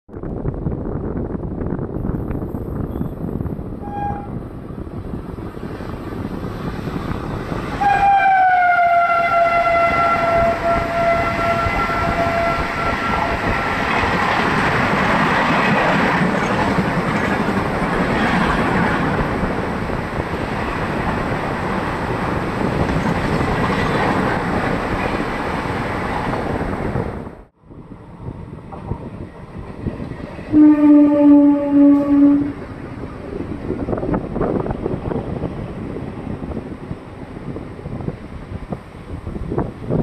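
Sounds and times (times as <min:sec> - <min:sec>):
train coaches rumbling past: 0:00.5 - 0:40.0
locomotive horn blast: 0:03.8 - 0:04.4, 0:07.8 - 0:13.8, 0:30.5 - 0:32.6.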